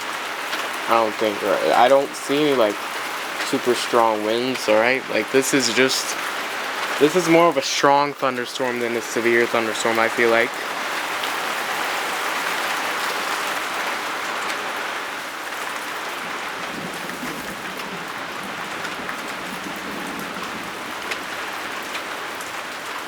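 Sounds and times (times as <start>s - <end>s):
sharp raindrop hits: 0.0s - 14.7s, 15.5s - 23.0s
steady rain falling: 0.0s - 23.0s.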